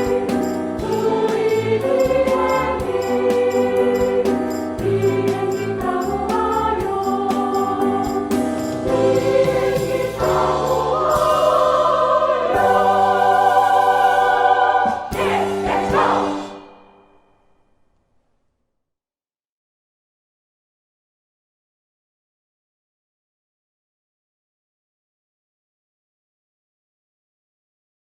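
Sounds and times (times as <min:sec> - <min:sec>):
instrumental accompaniment with beat: 0:00.0 - 0:16.8
women's choir singing: 0:00.0 - 0:16.8.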